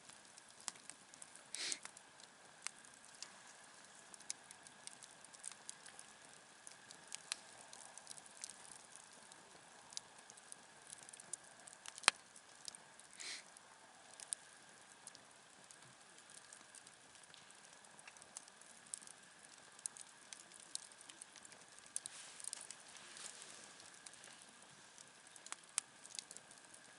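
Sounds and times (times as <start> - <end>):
campfire crackling: 0.0 - 26.9
short hiss: 1.5 - 1.9, 13.2 - 13.4.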